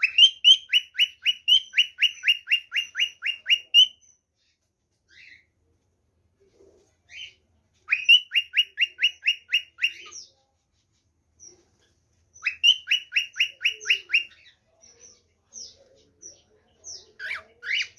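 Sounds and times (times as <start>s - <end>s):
cockatiel chirps: 0.0s - 4.5s, 7.1s - 10.3s, 11.4s - 14.5s.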